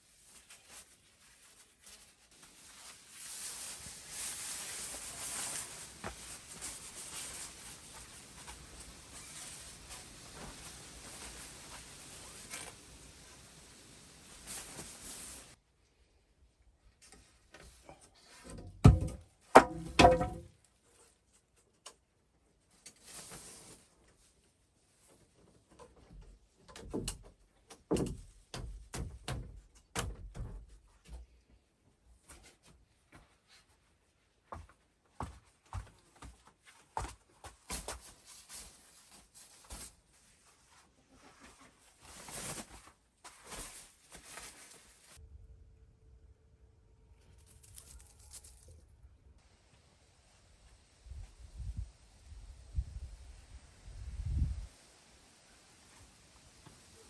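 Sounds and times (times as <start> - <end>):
scraping or rustling: 0.2 - 13.0, 37.7 - 45.2, 47.2 - 48.8
handling clicks and rustles: 47.2 - 48.9.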